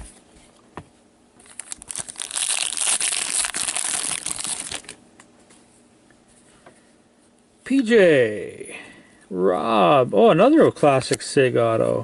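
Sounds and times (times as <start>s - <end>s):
plastic wrapper crinkling: 1.4s - 5.0s.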